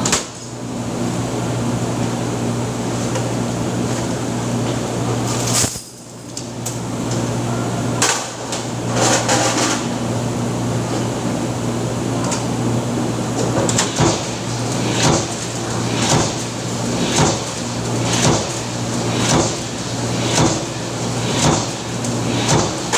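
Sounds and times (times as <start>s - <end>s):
press machinery hum: 0.0s - 22.9s.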